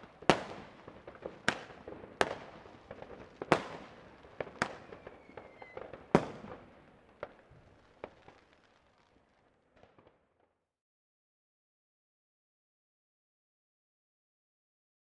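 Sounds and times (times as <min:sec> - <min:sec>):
fireworks bangs: 0:00.0 - 0:10.3.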